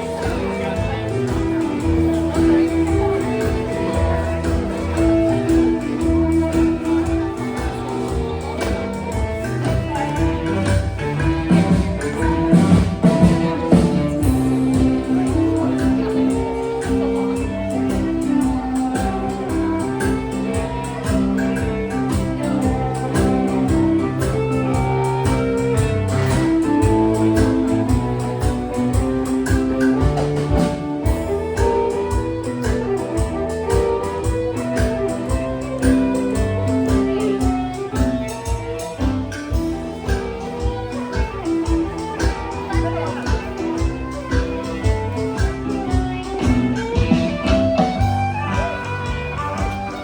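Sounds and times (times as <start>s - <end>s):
fiddle melody: 0.0s - 50.0s
keyboard accompaniment: 0.0s - 50.0s
percussion beat: 0.0s - 50.0s.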